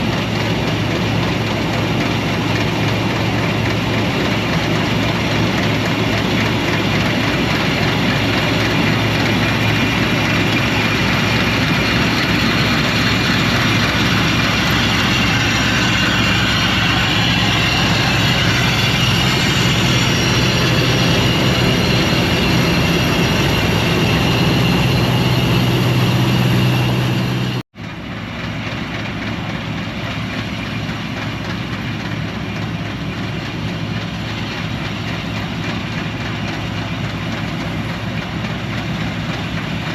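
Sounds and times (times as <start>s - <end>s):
combine harvester machinery drone: 0.0s - 39.9s.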